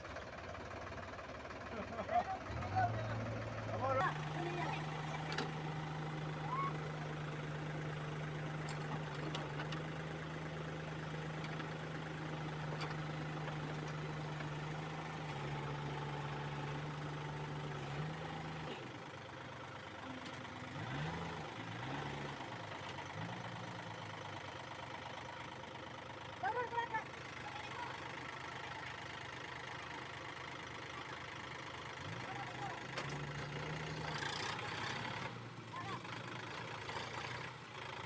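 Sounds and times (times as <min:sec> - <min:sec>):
heavy vehicle engine idling: 0:00.0 - 0:38.0.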